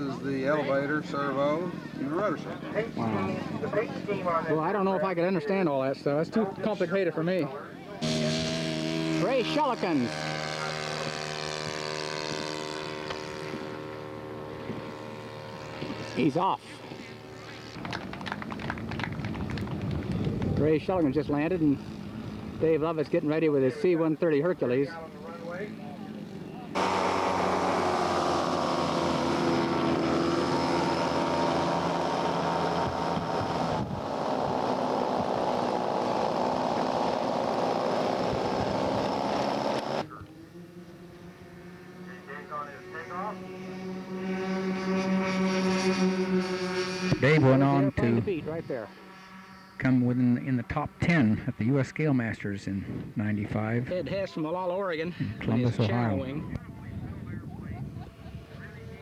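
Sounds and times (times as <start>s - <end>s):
model airplane engine running: 8.0s - 51.7s, 56.8s - 59.0s.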